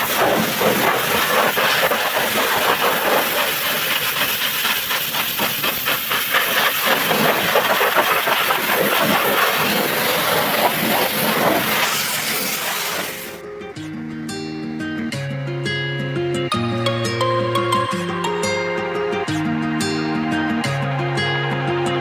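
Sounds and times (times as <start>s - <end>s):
pressure washer spraying water: 0.0s - 13.4s.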